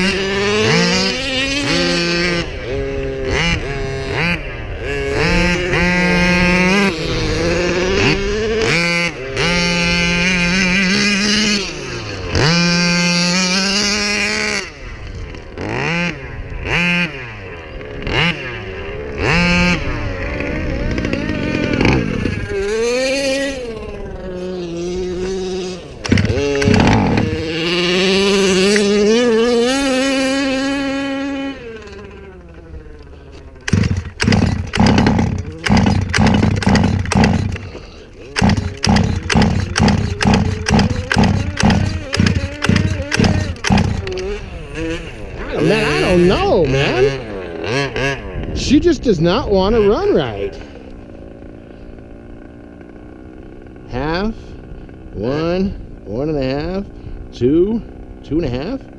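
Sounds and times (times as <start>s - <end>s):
small two-stroke engine revving: 0.0s - 58.9s
sharp engine knocks: 33.6s - 44.3s
person talking: 45.4s - 47.2s.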